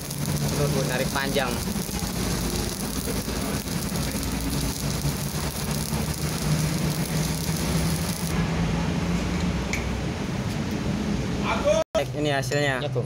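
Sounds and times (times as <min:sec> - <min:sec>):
welder low hum: 0:00.0 - 0:08.4
welding arc crackling sizzle: 0:00.0 - 0:08.4.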